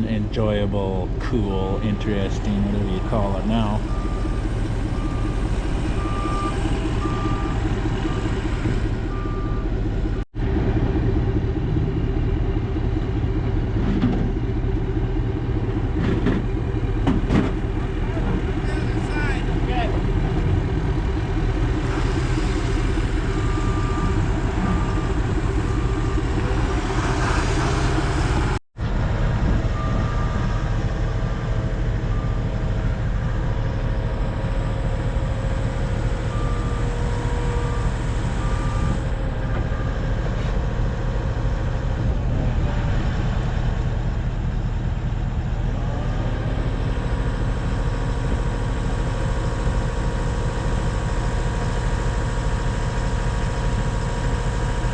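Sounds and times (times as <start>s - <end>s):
vehicle engine rumbling: 0.0s - 54.9s
reversing alarm beeps: 1.4s - 10.2s, 23.0s - 26.8s, 29.7s - 31.3s, 32.0s - 33.9s, 35.6s - 40.3s.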